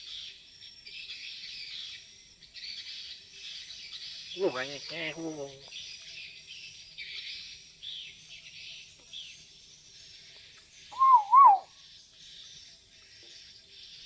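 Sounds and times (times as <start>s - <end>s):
bird chirping softly: 0.0s - 14.0s
bird whistled call: 10.9s - 11.7s.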